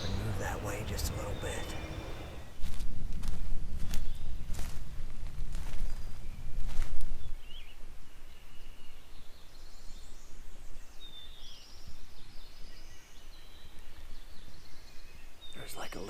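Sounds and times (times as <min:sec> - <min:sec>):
small birds chirping and trilling: 0:00.0 - 0:02.5, 0:07.5 - 0:16.0
wind rumbling on microphone: 0:00.0 - 0:07.6.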